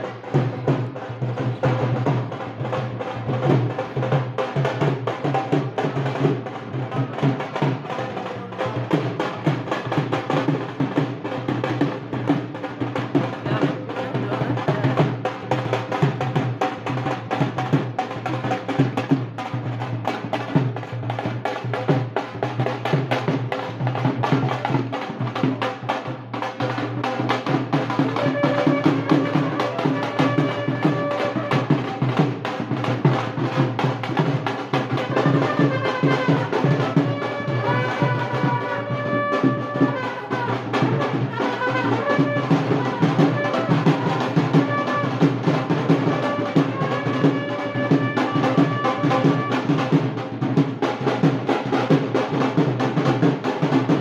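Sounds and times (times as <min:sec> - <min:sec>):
fast dense drumming: 0:00.0 - 0:54.0
wind instrument melody: 0:26.0 - 0:32.6, 0:34.8 - 0:50.3.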